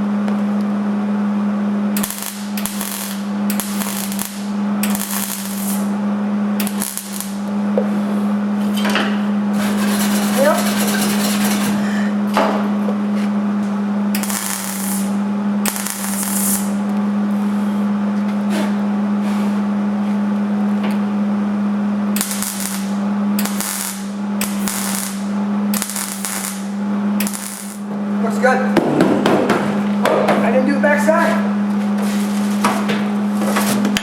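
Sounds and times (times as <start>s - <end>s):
steady low hum: 0.0s - 34.0s
welding arc crackle: 1.9s - 6.0s, 6.6s - 7.6s, 14.1s - 16.9s, 22.1s - 27.9s.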